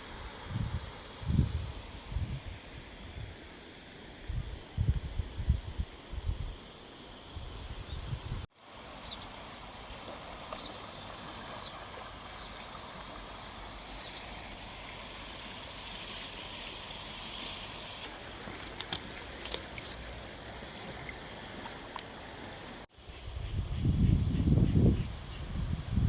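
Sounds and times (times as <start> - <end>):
river water flowing: 8.6 - 22.9.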